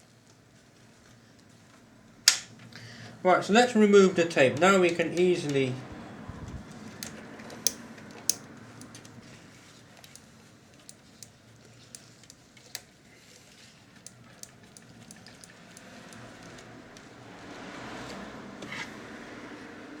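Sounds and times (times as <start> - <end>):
hands clicking on tape mechanism: 2.3 - 2.8, 6.6 - 9.2, 10.0 - 17.1.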